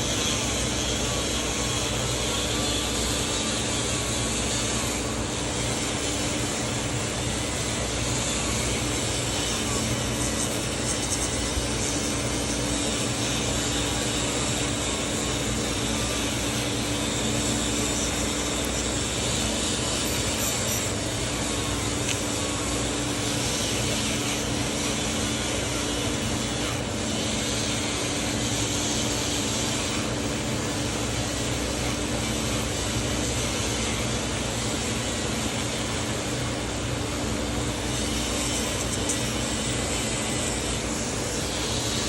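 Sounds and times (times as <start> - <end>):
rotary tool running at high speed: 0.0 - 42.0.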